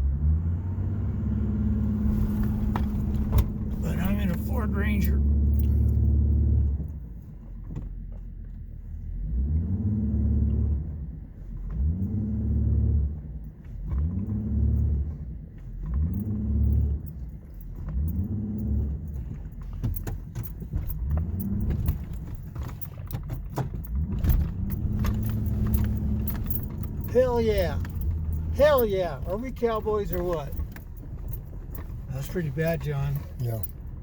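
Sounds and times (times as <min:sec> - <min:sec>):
truck engine revving: 0:00.0 - 0:06.8, 0:23.9 - 0:34.0.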